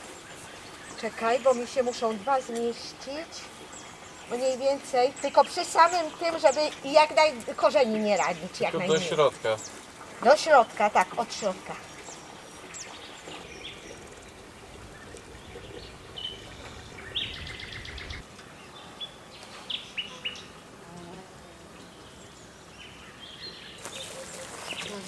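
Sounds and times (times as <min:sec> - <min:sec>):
small birds chirping: 0:00.0 - 0:20.6, 0:21.7 - 0:25.0.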